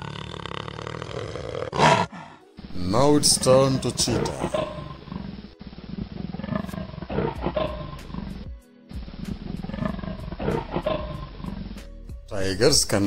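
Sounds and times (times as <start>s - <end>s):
background music: 0.0s - 13.0s
cheetah calling: 1.8s - 11.9s.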